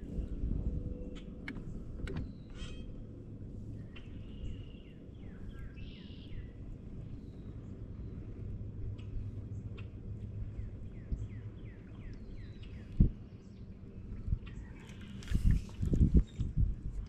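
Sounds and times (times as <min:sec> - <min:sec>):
songbirds trilling and chirping: 0:00.0 - 0:17.0
steady low rumble: 0:00.0 - 0:17.0.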